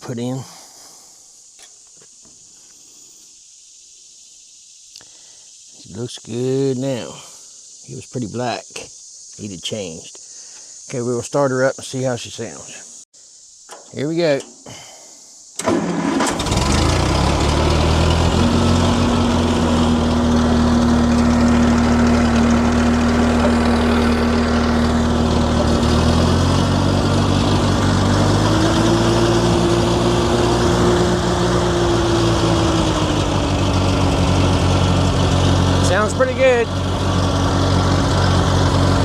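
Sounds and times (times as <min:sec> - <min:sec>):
tractor engine starting and running: 0:13.7 - 0:14.7, 0:15.6 - 0:39.0.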